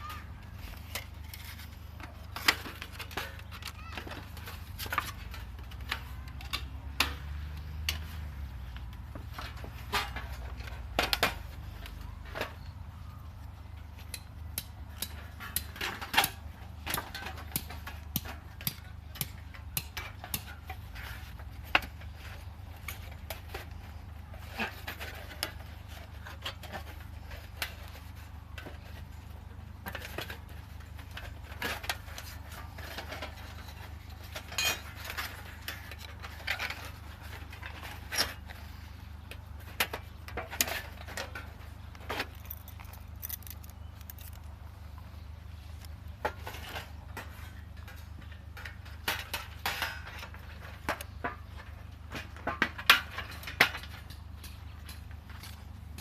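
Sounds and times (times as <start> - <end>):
metal plates clinking and rattling: 14.9 - 44.5.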